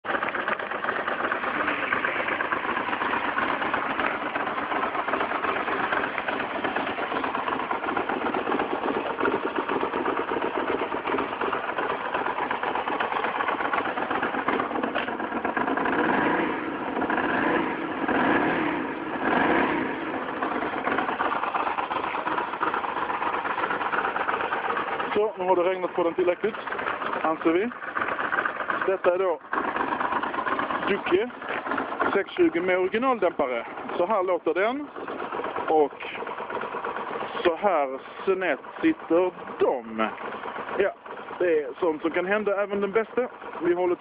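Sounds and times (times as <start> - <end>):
motorcycle engine idling: 0.0 - 44.0
motorcycle throttle blips: 0.1 - 34.0.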